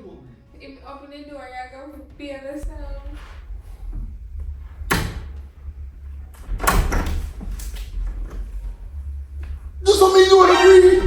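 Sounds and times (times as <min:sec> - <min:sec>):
steady low rumble: 0:02.2 - 0:11.0
door banging: 0:02.6 - 0:11.0
door clattering: 0:02.6 - 0:11.0.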